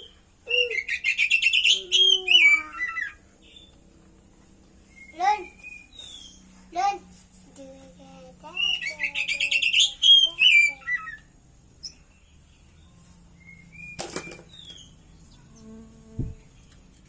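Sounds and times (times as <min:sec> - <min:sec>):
bird singing warbled phrases: 0:00.0 - 0:03.9, 0:04.8 - 0:07.0, 0:08.2 - 0:16.8.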